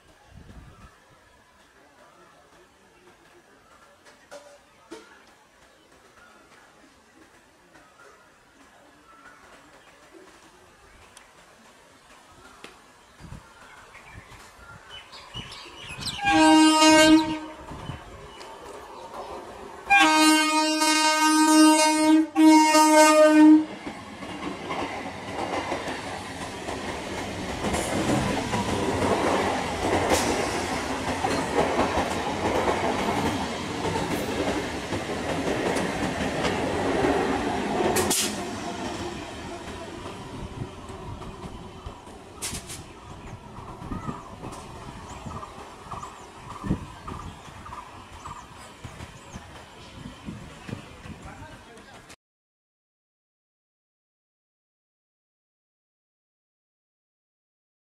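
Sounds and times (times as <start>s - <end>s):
train wheels on rails: 1.6s - 52.2s
train horn blasts: 16.1s - 17.8s, 19.9s - 23.8s.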